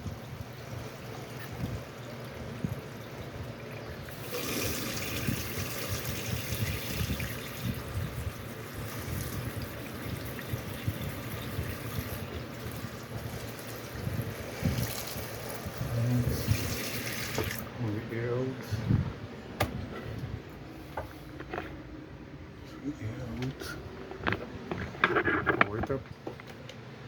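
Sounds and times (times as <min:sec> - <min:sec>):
water running from a tap: 0:00.0 - 0:17.6.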